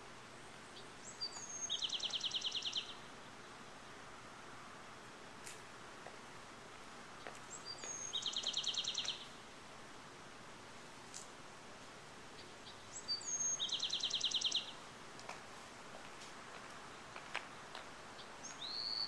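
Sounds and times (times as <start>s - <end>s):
songbird singing with trill: 0.6s - 3.1s, 7.2s - 9.4s, 12.4s - 14.8s, 18.2s - 19.0s.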